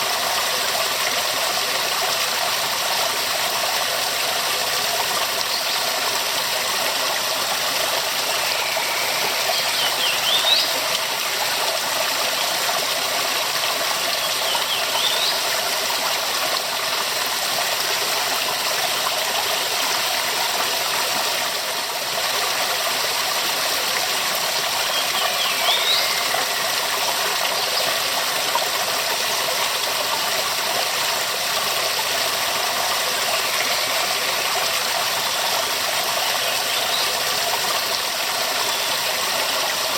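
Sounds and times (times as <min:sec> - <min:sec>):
waterfall rushing: 0:04.7 - 0:18.6, 0:24.4 - 0:26.9, 0:32.0 - 0:39.9.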